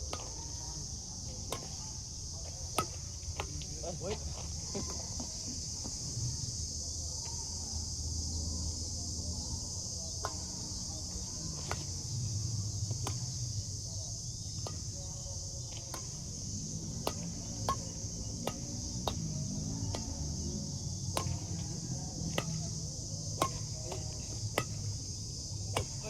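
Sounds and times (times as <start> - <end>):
insects chirping: 0.0 - 26.0
rackets hitting shuttlecock: 0.1 - 0.5, 1.3 - 3.8, 10.2 - 10.6, 12.8 - 13.6, 14.3 - 26.0.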